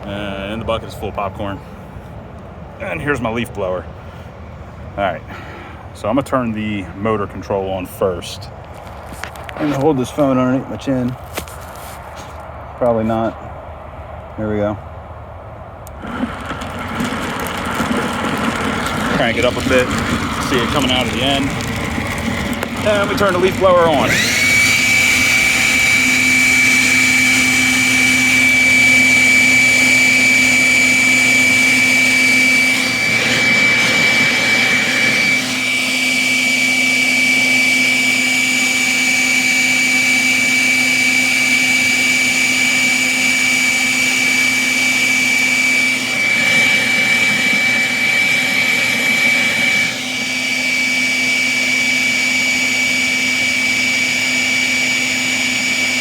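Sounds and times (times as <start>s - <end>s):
electric leaf blower whining: 15.8s - 56.0s.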